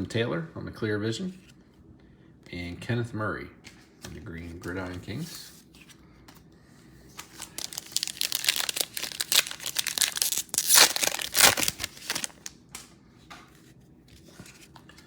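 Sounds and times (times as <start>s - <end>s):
foil wrapper tearing and crumpling: 7.2s - 12.5s.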